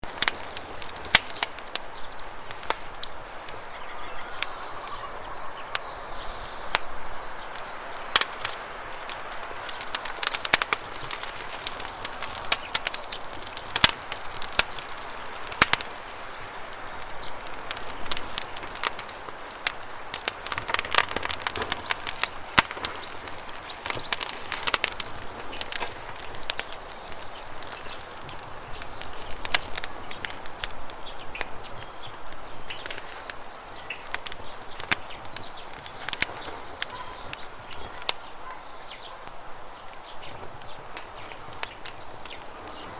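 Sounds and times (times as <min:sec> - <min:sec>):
campfire crackling and popping: 0:00.0 - 0:42.9
bird trilling: 0:03.0 - 0:07.6, 0:35.7 - 0:39.3.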